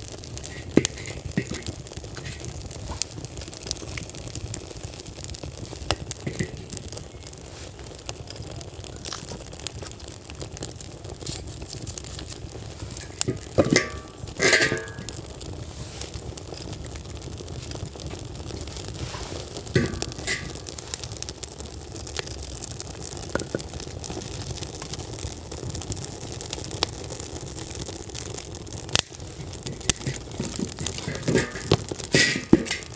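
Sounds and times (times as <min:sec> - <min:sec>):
wood fire crackling: 0:00.0 - 0:32.9
clatter and scrape: 0:00.4 - 0:04.1, 0:05.7 - 0:07.8, 0:11.2 - 0:16.9, 0:17.5 - 0:21.1, 0:29.0 - 0:32.9.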